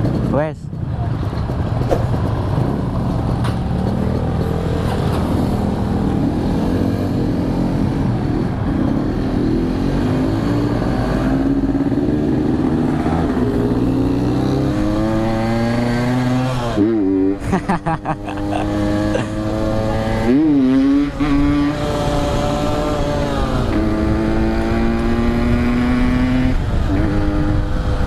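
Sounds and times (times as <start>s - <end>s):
two-stroke motorcycle engine: 0.0s - 10.6s.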